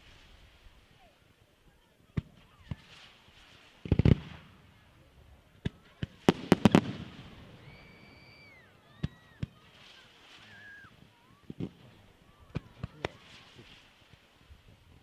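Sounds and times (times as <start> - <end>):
fireworks cracks and bangs: 2.2 - 4.9, 5.5 - 8.1, 8.9 - 14.5
firework whistling: 6.2 - 14.4.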